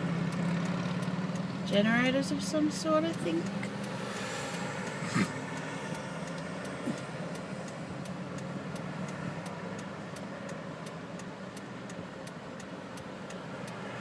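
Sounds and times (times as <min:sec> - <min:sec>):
car engine humming: 0:00.0 - 0:14.0
fast even ticking: 0:00.2 - 0:14.0.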